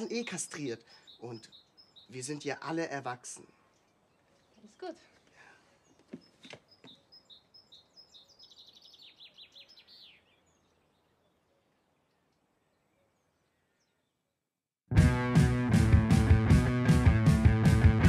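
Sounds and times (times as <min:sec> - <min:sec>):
songbird trill: 0:00.0 - 0:14.3.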